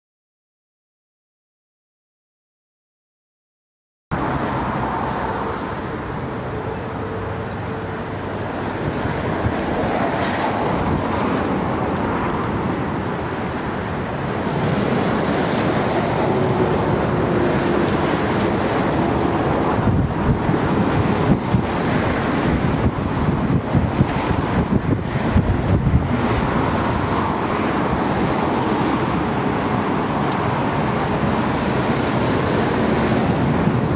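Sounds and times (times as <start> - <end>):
gusty wind on microphone: 4.1 - 33.9
jet airliner engines: 4.1 - 33.9.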